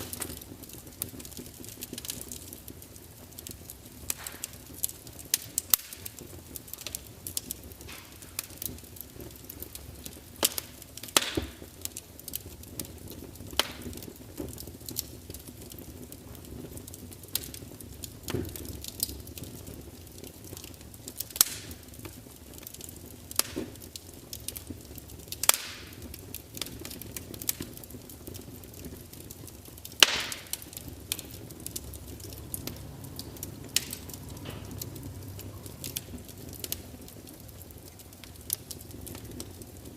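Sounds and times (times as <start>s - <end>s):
log fire crackling and popping: 0.0s - 39.9s.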